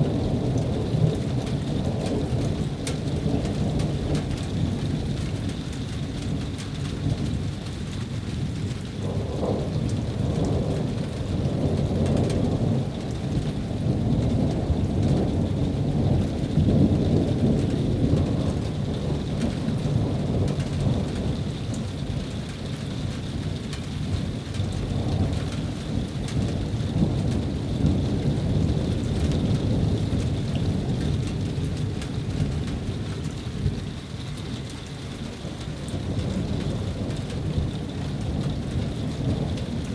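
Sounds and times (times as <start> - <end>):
rain falling: 0.0 - 39.9
rolling thunder: 8.4 - 34.2, 35.4 - 39.9.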